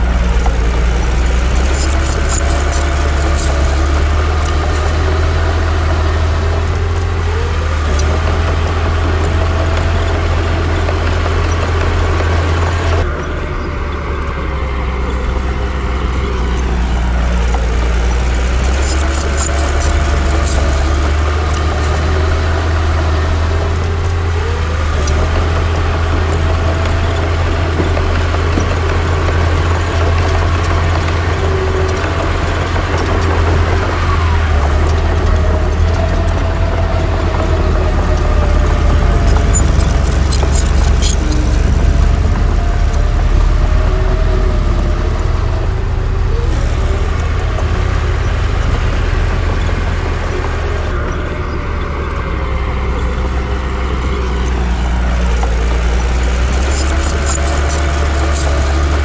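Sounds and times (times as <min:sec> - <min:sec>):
heavy diesel engine running: 0:00.0 - 0:59.0
sharp clicks: 0:00.2 - 0:13.0, 0:15.7 - 0:33.6, 0:38.0 - 0:43.9, 0:52.9 - 0:59.0.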